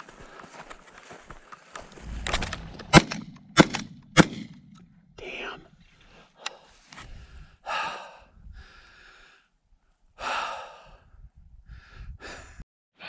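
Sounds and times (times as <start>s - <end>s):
person breathing hard: 5.4s - 12.6s.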